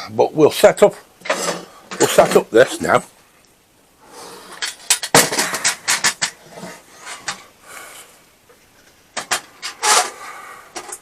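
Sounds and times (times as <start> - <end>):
parts knocking and clicking: 4.6 - 6.4, 9.2 - 11.0.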